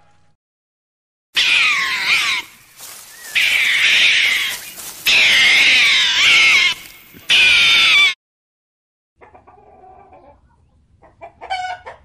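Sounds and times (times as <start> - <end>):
raccoon wavering cries: 1.4 - 8.2.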